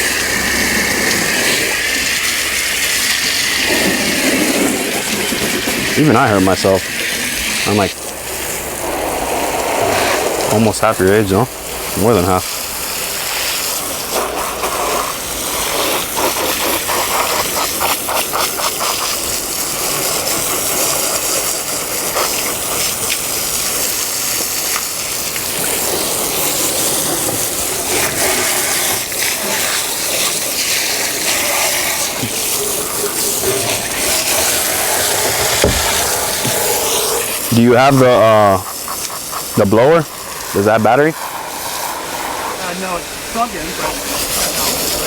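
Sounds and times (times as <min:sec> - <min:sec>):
water spraying from a hose: 0:00.0 - 0:45.0.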